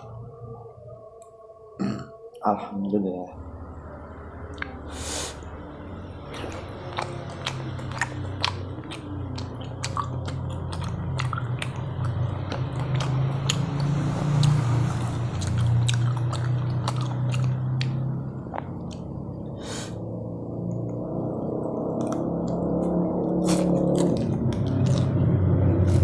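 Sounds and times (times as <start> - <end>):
low steady hum: 0.0 - 26.0
person chewing food: 6.3 - 20.0, 21.9 - 26.0
wet mouth clicks: 15.4 - 19.1.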